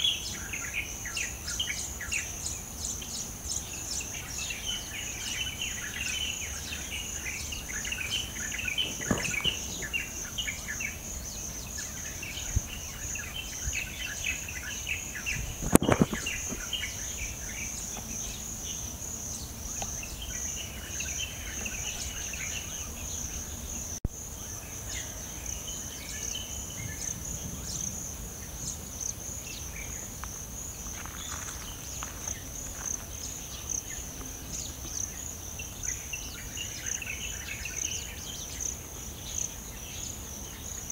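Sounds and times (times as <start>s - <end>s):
birds chirping: 0.0s - 40.9s
insects trilling: 0.0s - 40.9s
thump: 8.8s - 10.0s.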